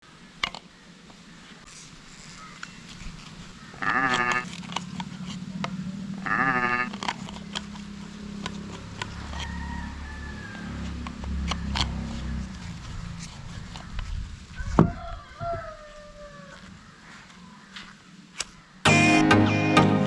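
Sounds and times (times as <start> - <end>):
animal bleating: 3.8 - 4.5, 6.2 - 6.9.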